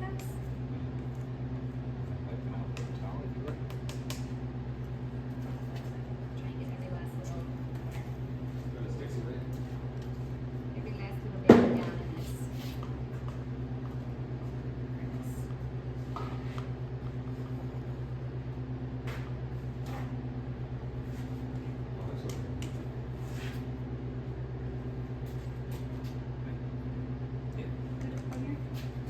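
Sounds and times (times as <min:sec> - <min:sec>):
low machine hum with flutter: 0:00.0 - 0:29.0.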